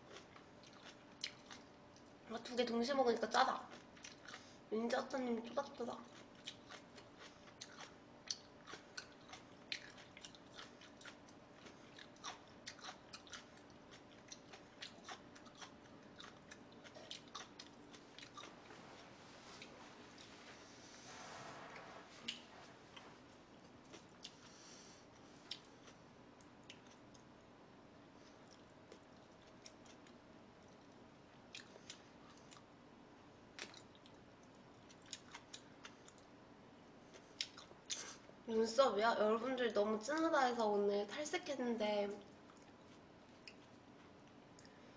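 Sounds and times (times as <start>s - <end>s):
chewing food: 0.0s - 2.2s, 3.3s - 4.6s, 5.5s - 20.4s, 22.2s - 24.6s, 25.2s - 27.3s, 28.2s - 32.7s, 33.6s - 36.4s, 37.1s - 38.2s, 42.2s - 44.8s.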